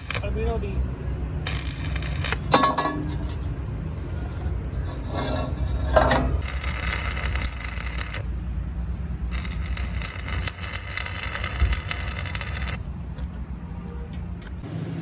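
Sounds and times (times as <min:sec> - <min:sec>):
steel cutting hiss and crackle: 0:00.0 - 0:00.5, 0:01.5 - 0:02.5, 0:06.4 - 0:13.0.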